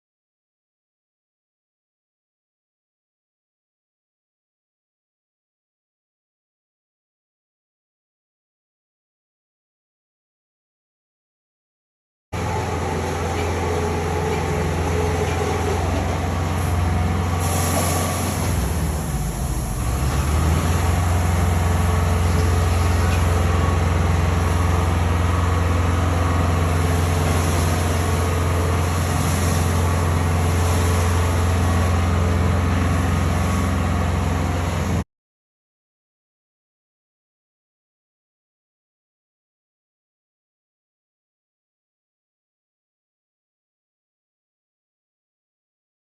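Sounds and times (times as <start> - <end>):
machine humming loudly: 12.4 - 35.0.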